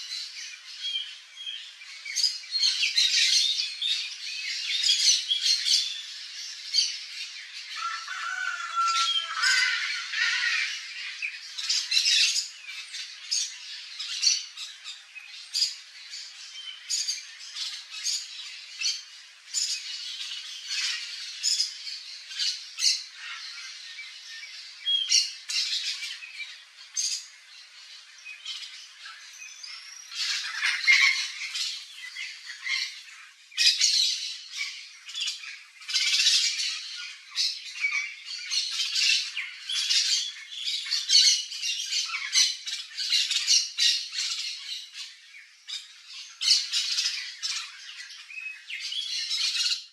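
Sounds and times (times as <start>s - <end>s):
parrots squawking: 7.8s - 12.3s, 30.1s - 33.0s.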